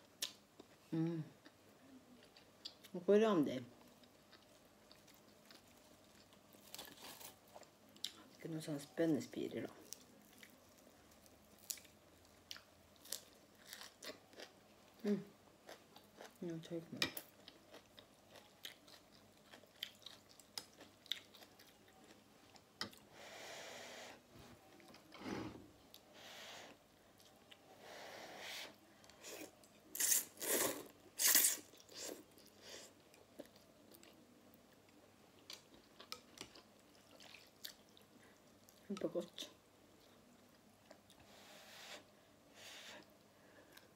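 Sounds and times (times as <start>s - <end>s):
person chewing food: 3.8s - 8.3s, 9.8s - 14.6s, 17.2s - 23.1s, 29.0s - 38.8s.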